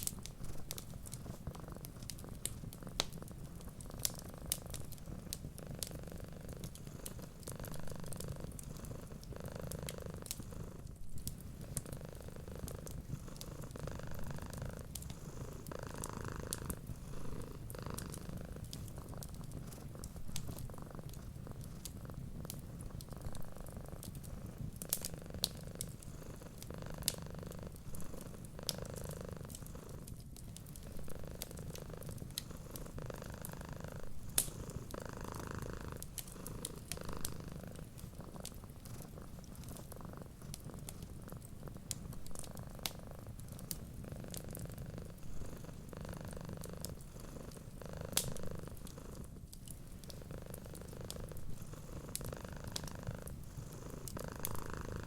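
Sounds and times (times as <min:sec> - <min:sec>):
wood fire crackling: 0:00.0 - 0:10.4, 0:11.1 - 0:46.0, 0:46.6 - 0:55.0
cat purring: 0:00.0 - 0:55.0.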